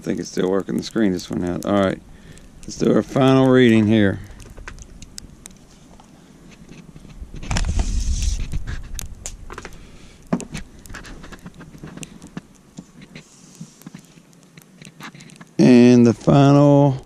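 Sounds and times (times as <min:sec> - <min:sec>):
ruler crunching into snow: 0:06.6 - 0:09.0.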